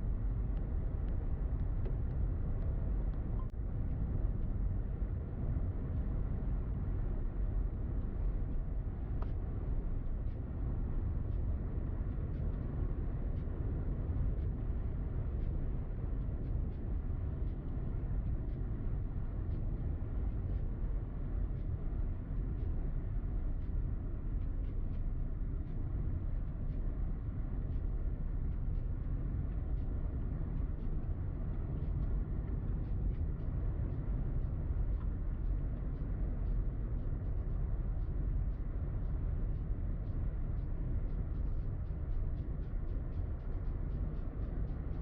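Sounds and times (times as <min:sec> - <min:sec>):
faint ticks: 0:07.9 - 0:45.0.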